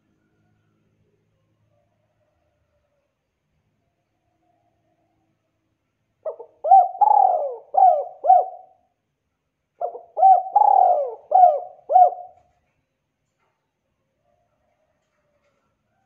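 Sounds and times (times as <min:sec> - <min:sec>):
dove cooing: 0:06.2 - 0:08.8, 0:09.8 - 0:12.5.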